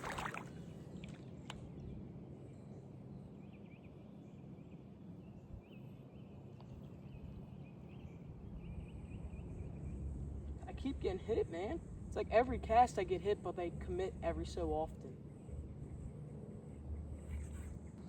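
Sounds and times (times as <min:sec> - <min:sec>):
low creek rumble: 0:00.0 - 0:01.9, 0:08.8 - 0:15.7.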